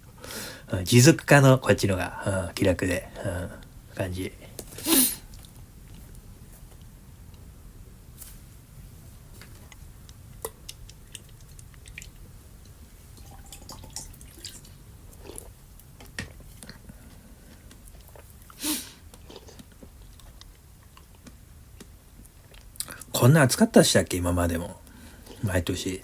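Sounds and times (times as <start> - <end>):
person chewing: 10.4 - 23.1.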